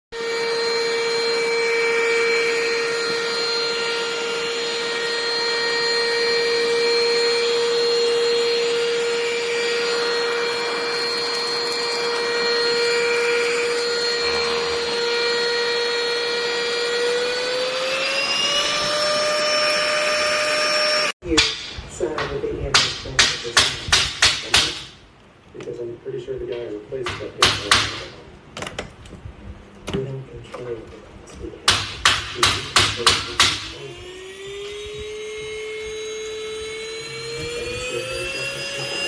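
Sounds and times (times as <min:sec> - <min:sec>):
handheld vacuum cleaner running: 0:00.2 - 0:21.2, 0:33.6 - 0:39.0.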